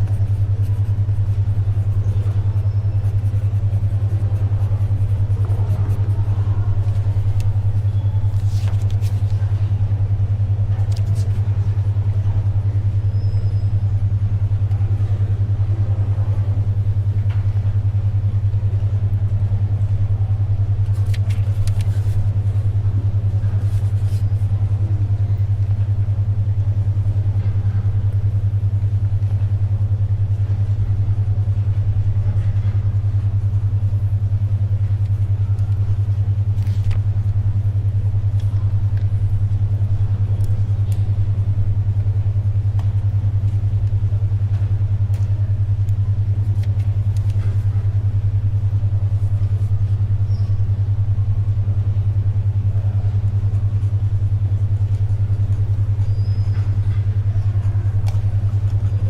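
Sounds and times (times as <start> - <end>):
pen writing on paper: 0.0 - 7.6
paper rustling: 0.0 - 9.7, 10.8 - 11.4, 20.8 - 22.8, 23.4 - 24.5, 36.6 - 37.0
pulsing low synthetic hum: 0.0 - 59.0.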